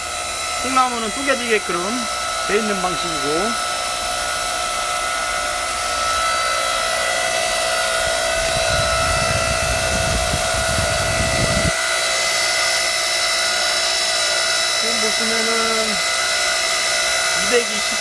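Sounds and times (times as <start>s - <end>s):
log splitter motor whining: 0.0s - 18.0s
low rumbling under load: 8.0s - 11.8s.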